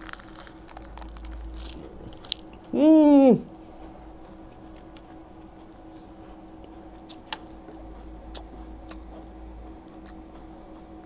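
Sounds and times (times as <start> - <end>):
closed-mouth chewing crunches: 0.0 - 2.8, 6.6 - 9.4, 10.0 - 10.5
steady low hum: 0.0 - 11.0.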